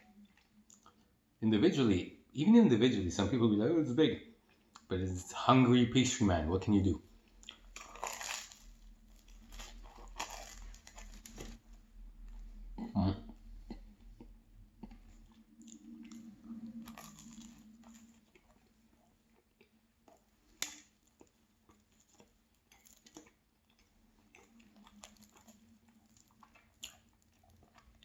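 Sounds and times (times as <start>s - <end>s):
chewing pastry: 0.0s - 1.4s, 7.1s - 28.0s.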